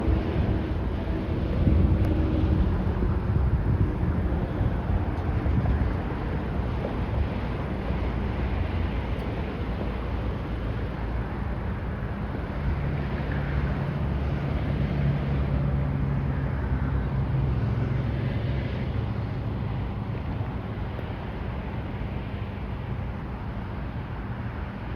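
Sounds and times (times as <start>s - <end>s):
jet engines idling: 0.0s - 15.6s
wind noise on microphone: 0.0s - 24.9s.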